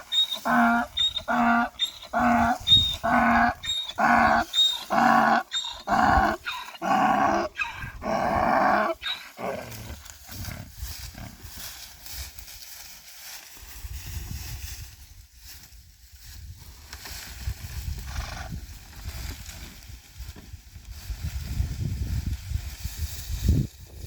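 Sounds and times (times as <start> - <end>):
animal calling roughly: 0.1 - 9.9.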